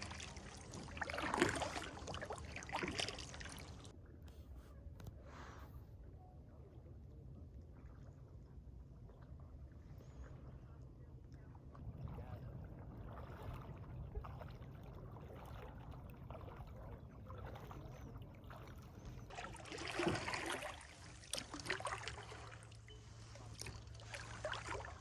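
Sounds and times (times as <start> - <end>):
paddle splashing in water: 0.0 - 3.9, 11.7 - 25.0
low steady rumble: 0.0 - 25.0.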